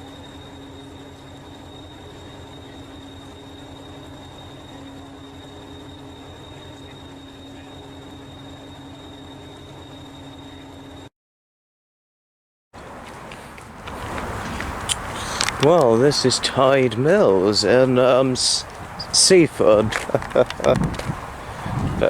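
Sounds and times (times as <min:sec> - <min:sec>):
thin high whine: 0:00.0 - 0:11.1, 0:12.8 - 0:22.0
vehicle running hum: 0:12.8 - 0:22.0.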